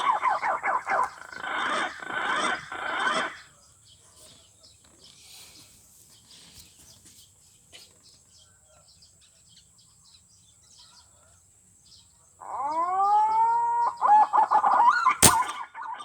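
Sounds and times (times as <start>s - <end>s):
small birds chirping: 0.0s - 16.0s
background hiss: 15.2s - 15.6s.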